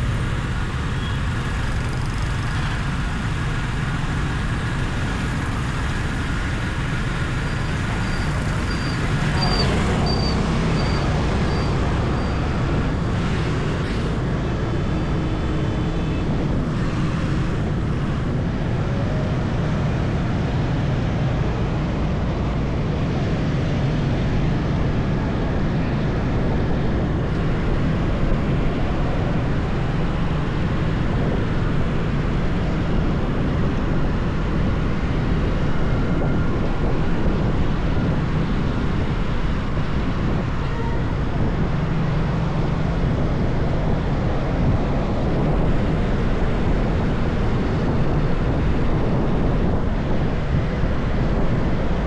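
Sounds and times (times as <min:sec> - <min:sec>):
motorbike engine: 0:00.0 - 0:18.4
road noise: 0:00.0 - 0:52.0
surrounding traffic: 0:00.0 - 0:52.0
wind rush: 0:00.0 - 0:52.0.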